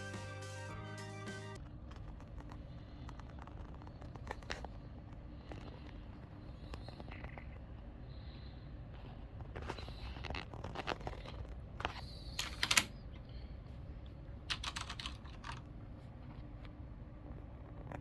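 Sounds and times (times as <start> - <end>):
mechanical keyboard keys clicking: 12.4 - 12.9, 14.5 - 15.7.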